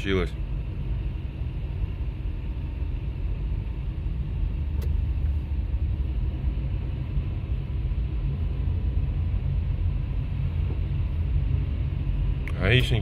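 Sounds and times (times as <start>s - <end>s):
car engine and road noise: 0.0s - 13.0s
click: 4.8s - 5.0s.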